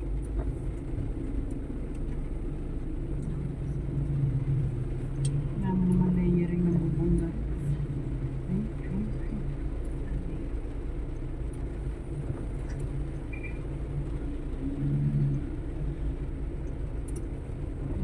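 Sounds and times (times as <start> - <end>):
road noise: 0.0 - 18.0
vehicle engine rumble: 0.0 - 18.0.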